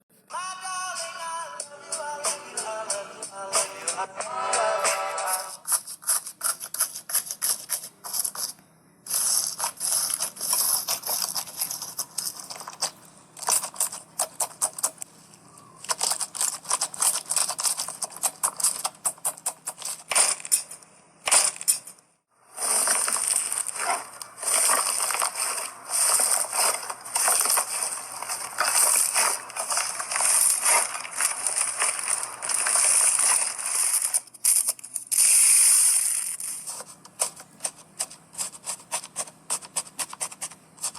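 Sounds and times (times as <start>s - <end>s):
slime crackling and popping: 15.7s - 21.9s, 22.6s - 37.3s.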